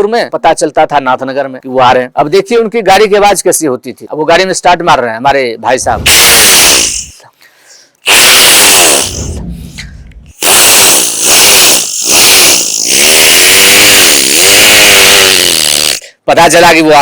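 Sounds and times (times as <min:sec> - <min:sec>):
man imitating a motorcycle: 0:10.4 - 0:16.1.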